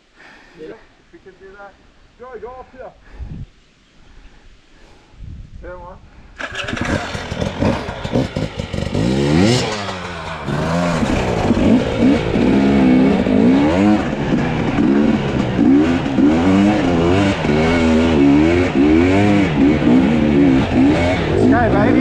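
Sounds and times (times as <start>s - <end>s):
dirt bike engine revving: 6.4s - 22.0s.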